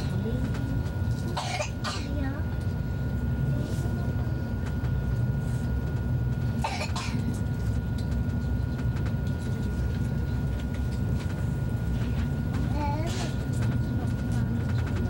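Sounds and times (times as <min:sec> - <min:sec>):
train rumble inside passenger car: 0:00.0 - 0:15.0
person coughing: 0:01.4 - 0:02.2, 0:06.6 - 0:07.2.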